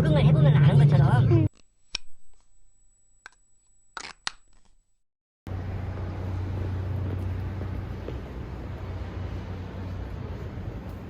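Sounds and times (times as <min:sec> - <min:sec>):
steady low hum: 0:00.0 - 0:01.6, 0:05.5 - 0:11.0.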